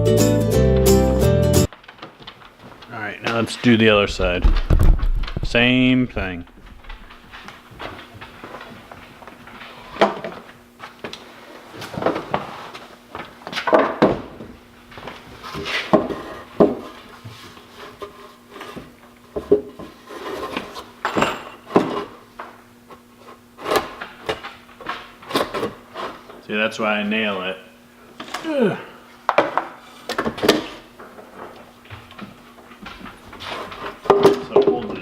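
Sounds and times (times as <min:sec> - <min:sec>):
wood scraping: 0:01.8 - 0:13.8, 0:15.0 - 0:20.9, 0:30.6 - 0:35.0
wooden knocks and clunks: 0:04.1 - 0:05.6.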